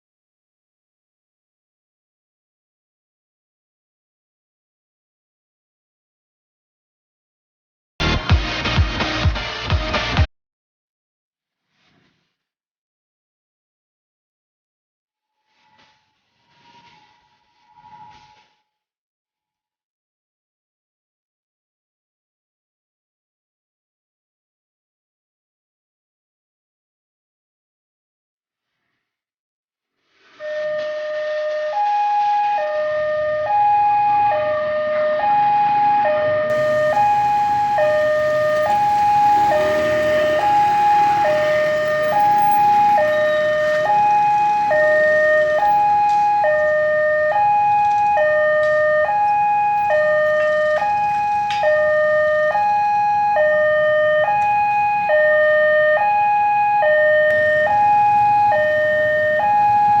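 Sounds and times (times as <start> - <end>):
level crossing two-tone alarm: 36.5 - 60.0.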